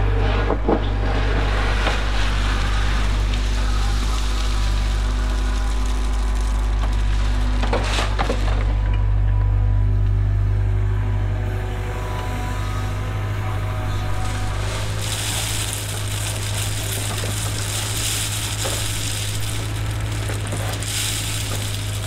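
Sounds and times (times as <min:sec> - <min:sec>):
diesel engine running: 0:00.0 - 0:22.0
loud rushing hiss: 0:14.2 - 0:22.0.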